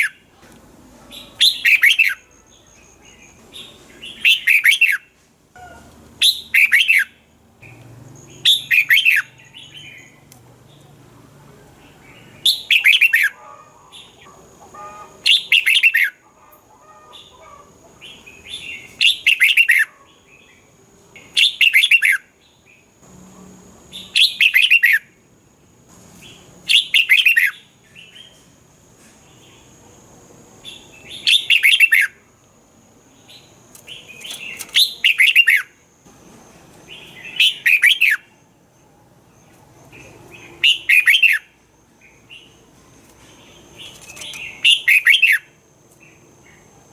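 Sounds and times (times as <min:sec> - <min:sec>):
bird singing song phrases: 0:01.1 - 0:11.0, 0:11.7 - 0:16.2, 0:16.9 - 0:23.0, 0:23.9 - 0:25.1, 0:26.2 - 0:28.5, 0:30.6 - 0:32.2, 0:33.1 - 0:35.8, 0:36.7 - 0:46.8
faint bird chirps: 0:30.6 - 0:32.3, 0:33.0 - 0:46.9.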